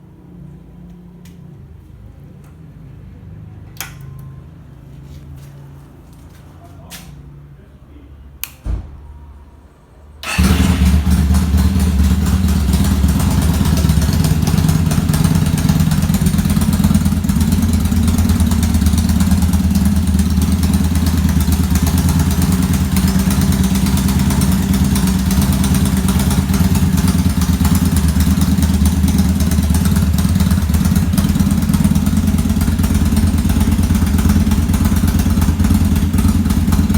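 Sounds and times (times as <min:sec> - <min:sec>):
click: 0:03.8 - 0:04.3, 0:08.4 - 0:08.7
motorcycle engine starting and idling: 0:10.2 - 0:36.9.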